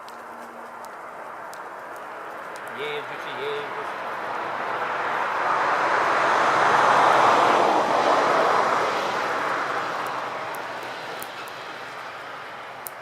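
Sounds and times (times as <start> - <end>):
vehicle passing by: 0.3 - 12.9.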